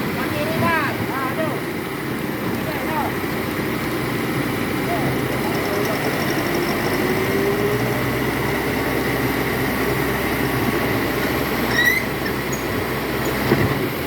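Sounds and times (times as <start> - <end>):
diesel truck engine under load: 0.0 - 14.0.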